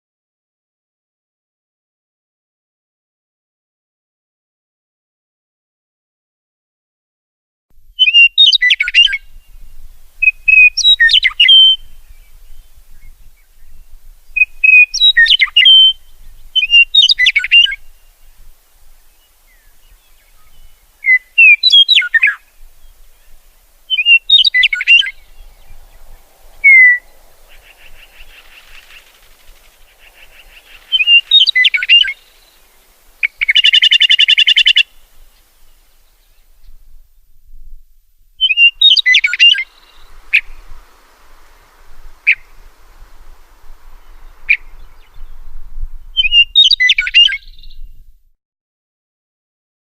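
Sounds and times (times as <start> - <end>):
songbird chirping: 7.9 - 37.3, 38.3 - 48.1
harsh buzzing bird call: 23.9 - 34.9.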